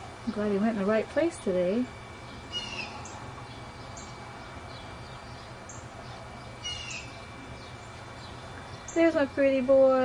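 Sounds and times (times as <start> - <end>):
low background noise: 0.0 - 10.0
bird chirping call: 2.3 - 9.1.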